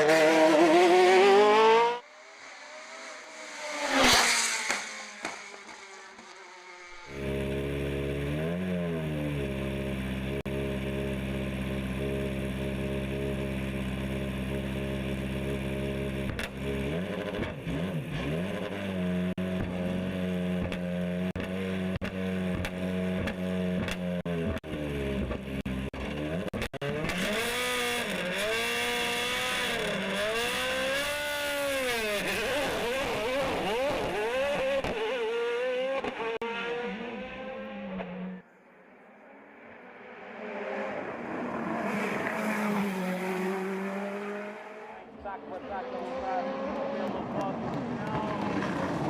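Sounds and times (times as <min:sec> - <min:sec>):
race car engine revving: 0:00.0 - 0:38.4, 0:39.6 - 0:49.0
engine crackles: 0:45.2 - 0:49.0.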